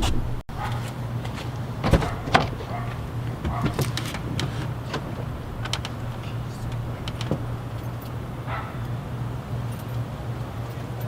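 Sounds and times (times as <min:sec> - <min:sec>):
car engine idling: 0:00.0 - 0:00.4, 0:04.8 - 0:08.6
light clicks and knocks: 0:01.9 - 0:08.2.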